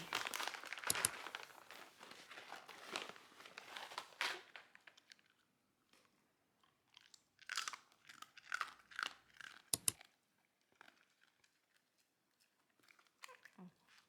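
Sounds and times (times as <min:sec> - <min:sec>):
sharp clicks: 0:00.8 - 0:01.2, 0:09.7 - 0:10.0
crunchy food being chewed: 0:05.0 - 0:14.0.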